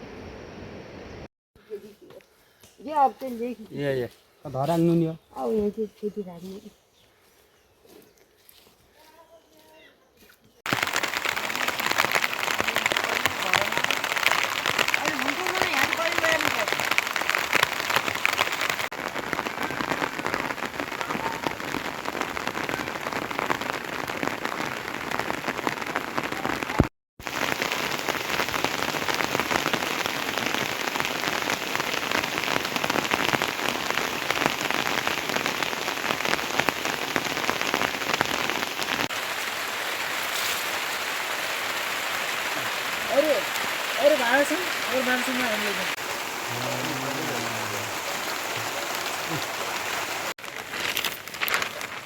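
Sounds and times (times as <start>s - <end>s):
heavy rain falling: 10.7s - 52.0s.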